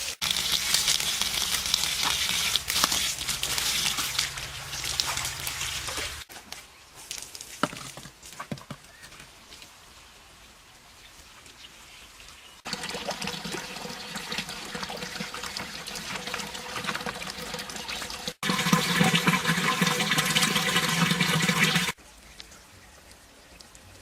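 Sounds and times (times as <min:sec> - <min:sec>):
water running and splashing: 0:00.0 - 0:06.3, 0:12.6 - 0:22.0.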